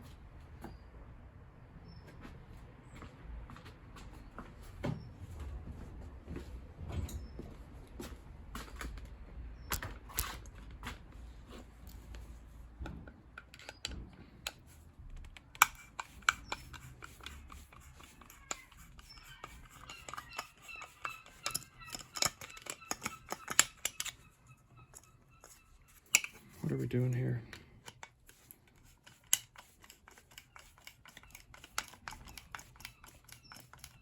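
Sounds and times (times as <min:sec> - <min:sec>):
hand tools and metal parts clinking: 0:15.4 - 0:34.0.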